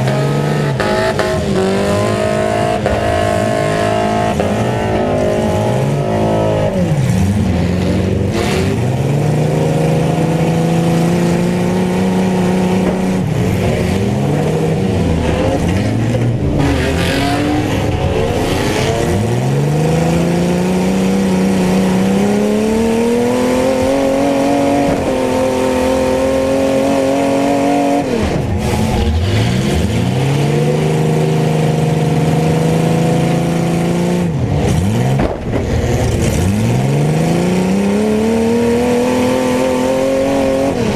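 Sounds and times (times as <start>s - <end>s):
truck engines revving: 0.0s - 40.9s.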